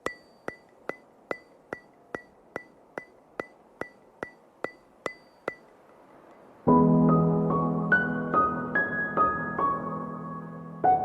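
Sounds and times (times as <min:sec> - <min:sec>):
sharp ticking with ringing ping: 0:00.0 - 0:06.5.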